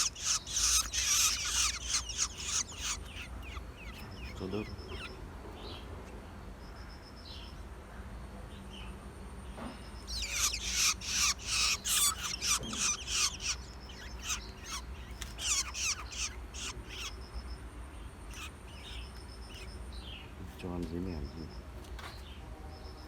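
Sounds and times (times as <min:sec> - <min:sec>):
shrike harsh raspy calls: 0:00.0 - 0:05.9, 0:10.0 - 0:20.3
faint bird chirps: 0:00.0 - 0:23.0.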